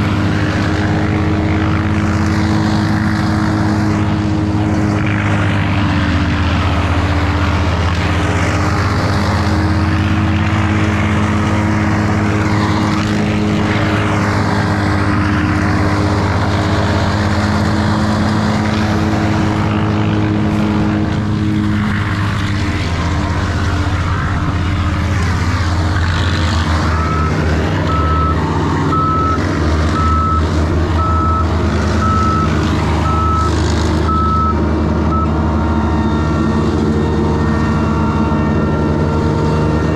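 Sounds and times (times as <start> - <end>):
large engine running: 0.0 - 39.9
reversing alarm beeping: 26.8 - 39.8.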